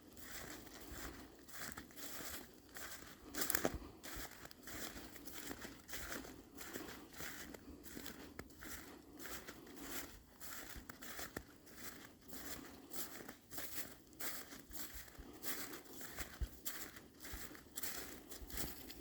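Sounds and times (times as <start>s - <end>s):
footsteps crunching through snow: 0.0s - 19.0s.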